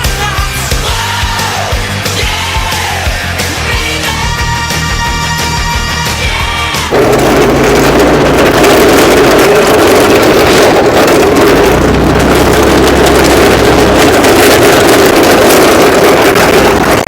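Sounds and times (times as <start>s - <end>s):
vehicle engine running: 5.4s - 17.0s
wind buffeting microphone: 6.9s - 17.0s.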